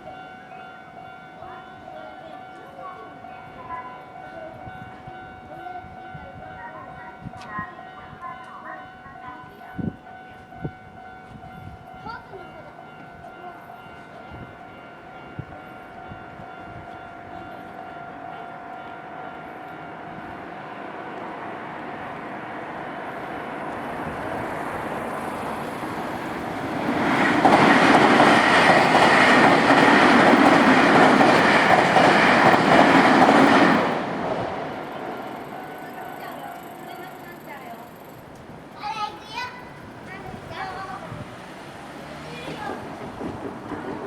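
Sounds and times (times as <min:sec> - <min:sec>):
electric train passing: 0:00.0 - 0:44.0
train cars clattering: 0:12.0 - 0:44.0
ringing warning bell: 0:24.8 - 0:38.3.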